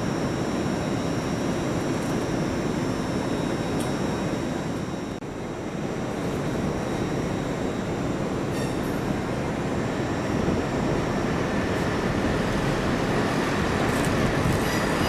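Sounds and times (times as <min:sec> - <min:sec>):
faint high whine: 0:00.0 - 0:15.0
train rumbling: 0:06.0 - 0:15.0.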